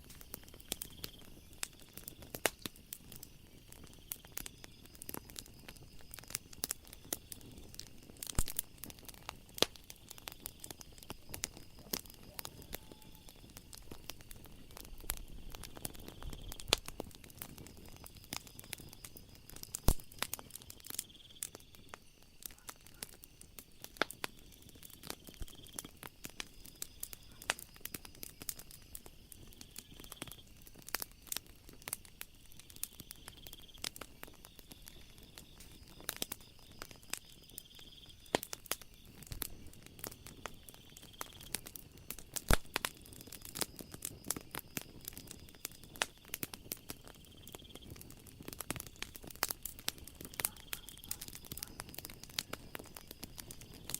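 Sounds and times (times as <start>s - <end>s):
wood fire crackling and popping: 0.0s - 53.9s
high-pitched insect trill: 10.2s - 14.2s.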